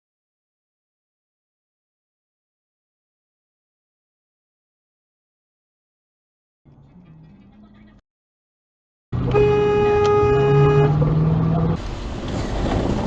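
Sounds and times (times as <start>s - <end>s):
vehicle and road noise: 6.7s - 8.0s, 9.1s - 13.0s
car horn: 9.2s - 11.1s.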